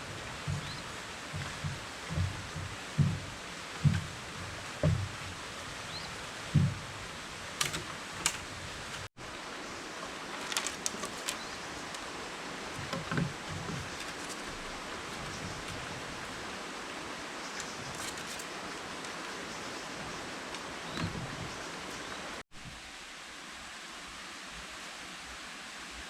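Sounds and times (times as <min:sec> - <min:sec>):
dull thuds: 0:00.0 - 0:09.1
outdoor background hiss: 0:00.0 - 0:26.0
sharp clicks and crackles: 0:07.6 - 0:09.1, 0:10.4 - 0:12.0, 0:17.6 - 0:18.5.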